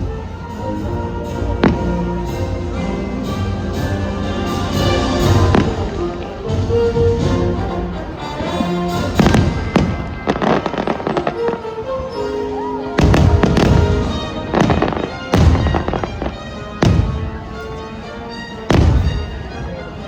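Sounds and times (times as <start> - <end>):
show music: 0.0 - 20.0
fireworks booming and crackling: 1.4 - 2.6, 3.8 - 11.6, 13.0 - 17.6, 18.7 - 19.7.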